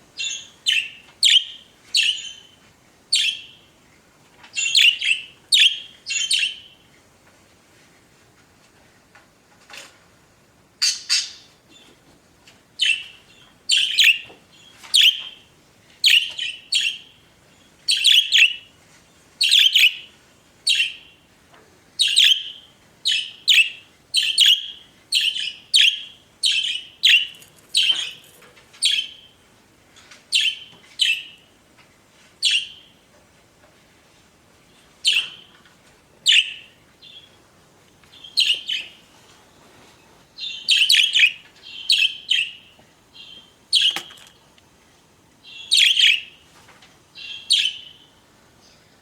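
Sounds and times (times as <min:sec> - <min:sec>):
budgerigars chirping: 0:00.2 - 0:02.4, 0:04.6 - 0:06.7, 0:13.7 - 0:14.3, 0:15.0 - 0:15.3, 0:17.9 - 0:18.6, 0:22.0 - 0:28.2, 0:38.2 - 0:38.9, 0:40.4 - 0:44.1, 0:45.5 - 0:46.3, 0:47.2 - 0:48.0.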